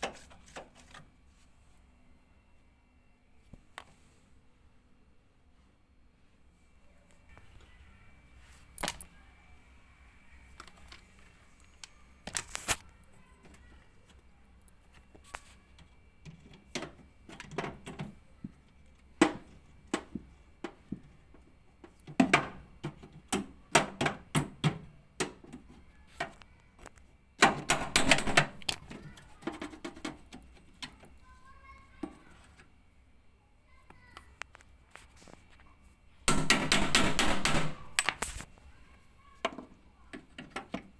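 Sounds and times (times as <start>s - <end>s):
tools and parts clattering: 8.7s - 9.1s, 36.3s - 38.5s.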